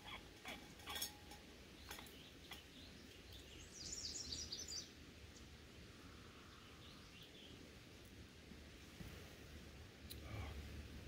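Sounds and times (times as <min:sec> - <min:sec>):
songbird chirping: 0:00.0 - 0:08.3
faint background noise: 0:00.0 - 0:11.0.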